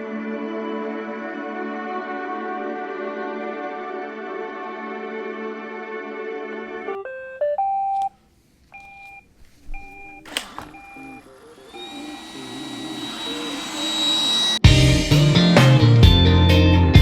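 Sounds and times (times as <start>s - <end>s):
music: 0.0s - 8.0s, 14.6s - 17.0s
click: 8.7s - 14.6s
robot vacuum beeps: 8.8s - 14.6s
vacuum motor whirring and whining: 9.3s - 15.2s
robot vacuum start-up tune: 9.6s - 14.9s.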